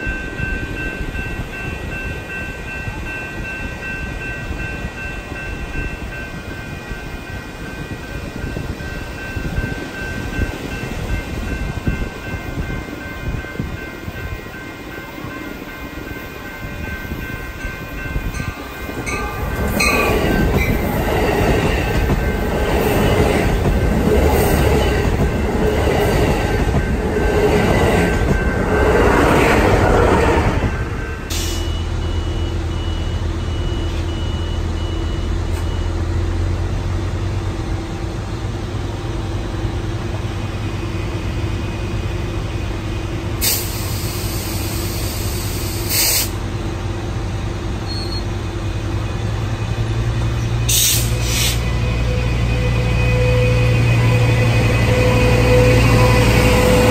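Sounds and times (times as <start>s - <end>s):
train wheels clattering on rails: 0.0s - 31.8s
short bursts of hiss: 43.4s - 46.4s.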